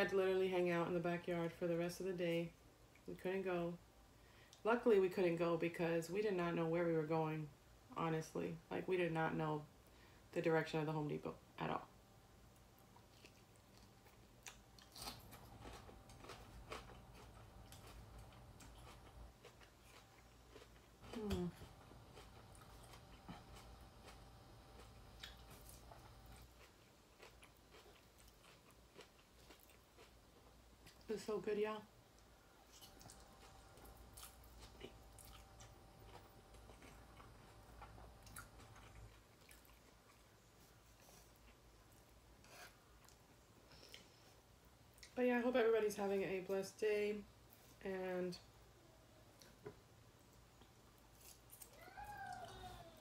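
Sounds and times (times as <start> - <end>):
chewing with soft crunches: 12.5 - 31.1, 32.1 - 45.2, 49.2 - 52.9.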